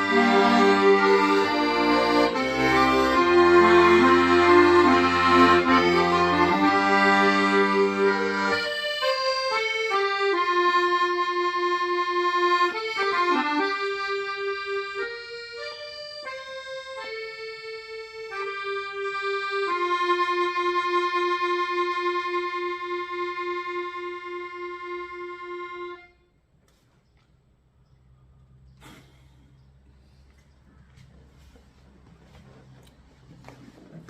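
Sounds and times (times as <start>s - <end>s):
accordion playing slow melody: 0.0s - 26.4s.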